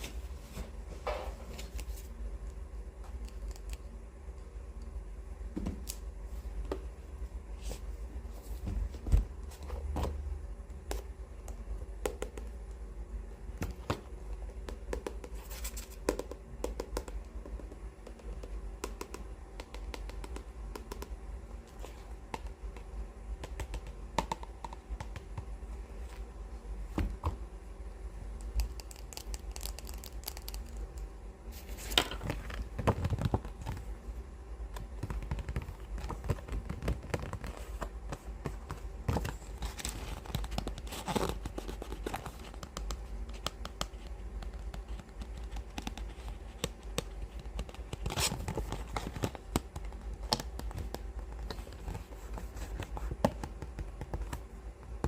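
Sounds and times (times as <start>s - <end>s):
steady low hum: 0.0s - 55.0s
taps and scratches on book cover: 13.6s - 25.6s, 31.6s - 33.9s, 34.7s - 55.0s
pages flipping: 34.8s - 42.7s.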